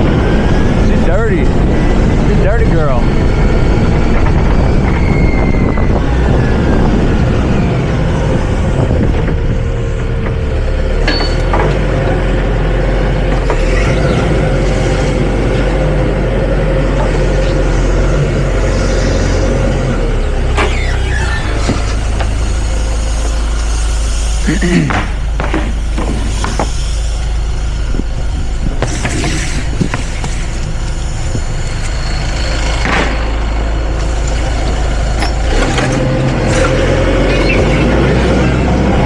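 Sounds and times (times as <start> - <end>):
forklift engine drone: 0.0 - 39.0
thin steady whine: 21.5 - 36.9.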